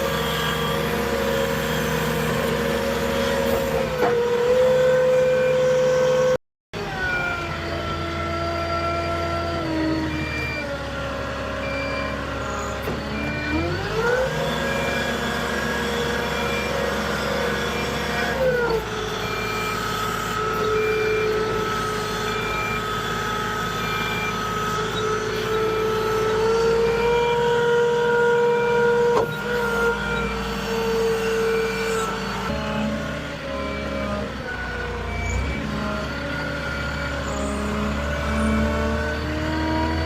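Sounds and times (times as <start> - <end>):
forklift engine revving: 0.0 - 40.0
reversing alarm beeping: 6.9 - 8.0, 10.1 - 10.7, 11.5 - 27.0, 28.5 - 40.0.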